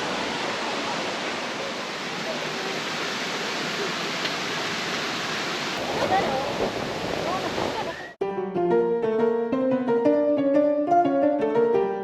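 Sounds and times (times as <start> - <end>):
mountain stream rushing: 0.0 - 8.2.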